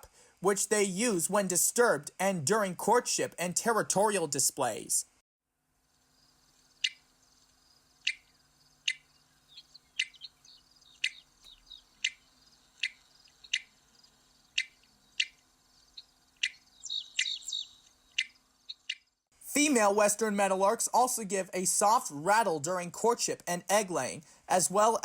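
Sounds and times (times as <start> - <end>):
soft bird twittering: 6.2 - 19.2
bird chup calls: 6.8 - 7.2, 7.9 - 19.1.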